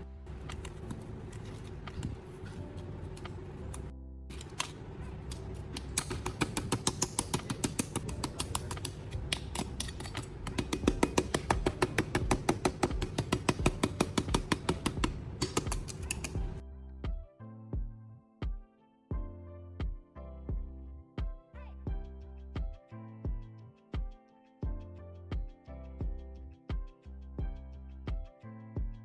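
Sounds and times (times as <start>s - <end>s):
quiet background music: 0.0s - 29.0s
rapid light tapping: 5.4s - 16.6s.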